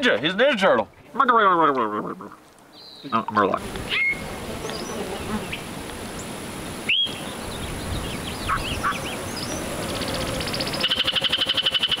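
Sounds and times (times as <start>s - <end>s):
birds chirping: 0.0s - 12.0s
loud rapid bird trill: 6.9s - 12.0s.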